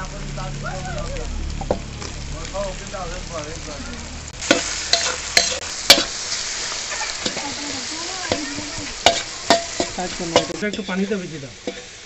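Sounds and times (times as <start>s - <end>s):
vegetables sizzling in oil: 0.0s - 12.0s
spatula clinking against pan: 8.2s - 10.9s.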